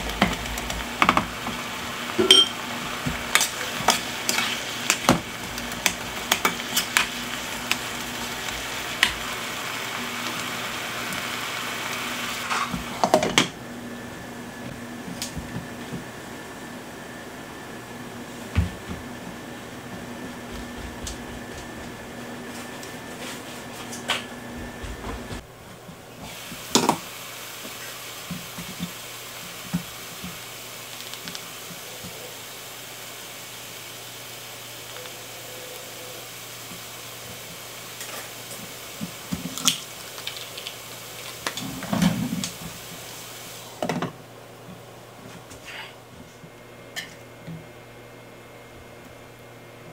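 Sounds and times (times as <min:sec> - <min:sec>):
meat sizzling in a frying pan: 0:00.0 - 0:13.3, 0:26.2 - 0:43.8.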